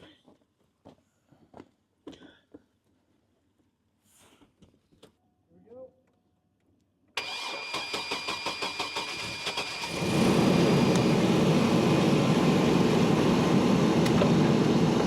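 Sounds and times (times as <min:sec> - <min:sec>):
starter motor cranking with whine: 0:07.2 - 0:13.1
car engine running: 0:09.9 - 0:15.0.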